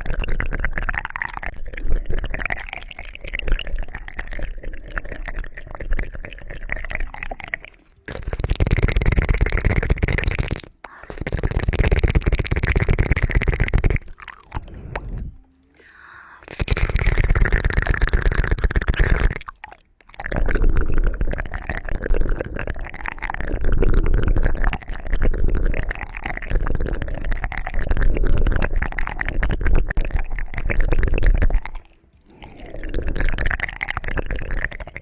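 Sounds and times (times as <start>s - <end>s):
crackling and rubbing at microphone: 0.0s - 15.4s, 16.4s - 35.0s
low rumble: 14.5s - 15.5s.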